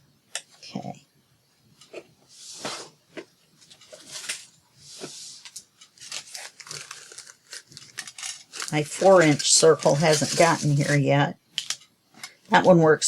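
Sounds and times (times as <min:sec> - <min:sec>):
paper rustling and sliding: 0:02.3 - 0:03.0, 0:03.6 - 0:11.0.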